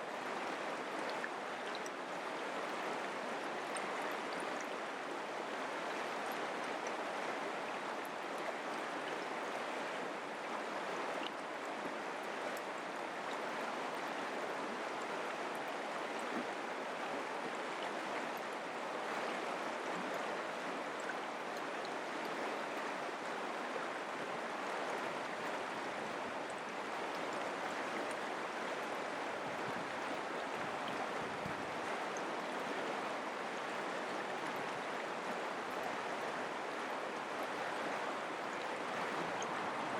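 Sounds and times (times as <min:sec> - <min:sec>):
creek water rushing and babbling: 0:00.0 - 0:39.9.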